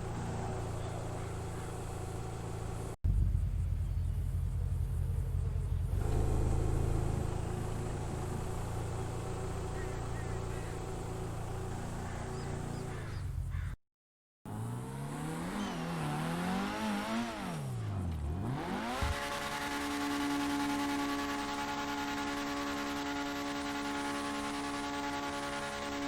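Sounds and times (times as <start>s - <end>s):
car engine revving: 0.0s - 13.0s, 14.5s - 26.0s.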